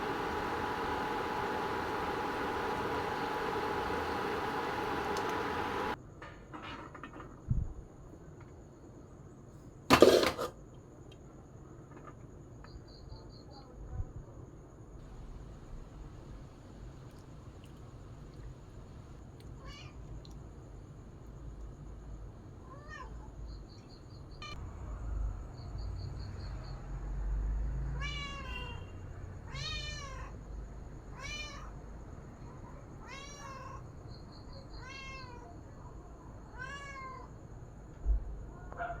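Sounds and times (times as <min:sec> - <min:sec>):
cat meowing: 0:28.0 - 0:28.8, 0:34.8 - 0:35.4, 0:36.5 - 0:37.3.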